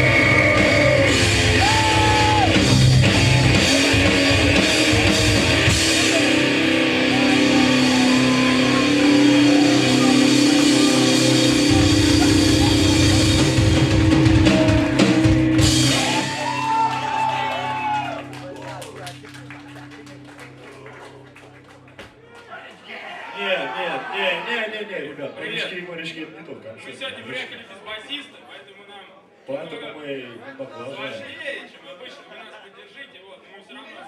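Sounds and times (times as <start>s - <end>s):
vocals: 0.0s - 13.6s
distorted electric guitar: 0.0s - 16.6s
drum kit: 0.0s - 20.8s.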